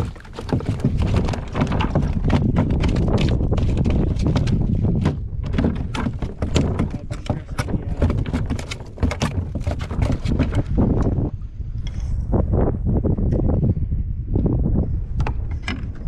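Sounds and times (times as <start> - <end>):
knocking and clattering on a kayak: 0.0 - 11.9, 15.1 - 16.0
wind rumble on microphone: 0.0 - 16.0.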